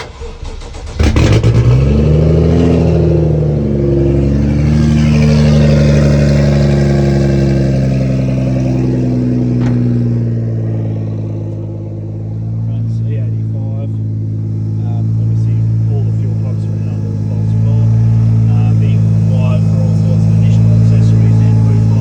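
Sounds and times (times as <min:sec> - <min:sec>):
car engine starting and idling: 0:00.0 - 0:22.0.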